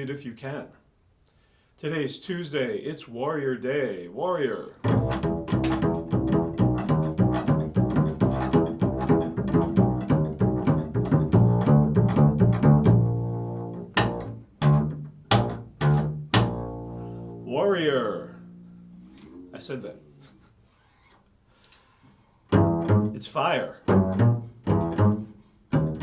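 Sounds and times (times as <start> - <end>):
plucked string instrument solo: 4.8 - 19.6, 22.5 - 23.3, 23.9 - 26.0.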